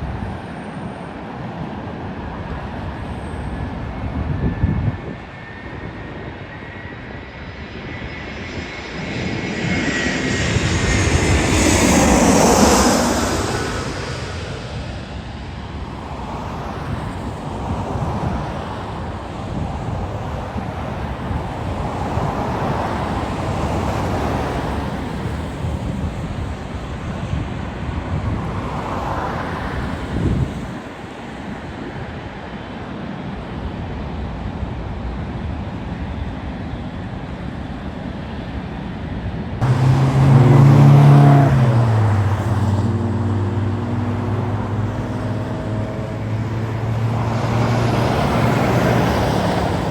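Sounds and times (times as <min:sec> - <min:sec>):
large vehicle engine drone: 0:03.6 - 0:26.6, 0:39.6 - 0:49.9
road traffic passing: 0:07.0 - 0:26.9, 0:28.2 - 0:30.8, 0:39.6 - 0:49.9.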